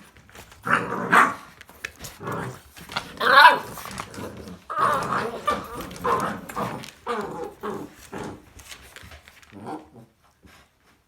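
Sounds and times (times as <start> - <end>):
puppy barking: 3.2 - 3.8.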